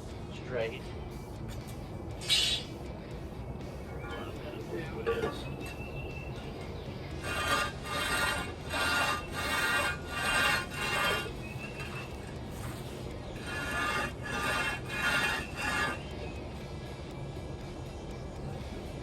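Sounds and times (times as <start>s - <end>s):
metal scraping on rough concrete: 4.0s - 16.3s.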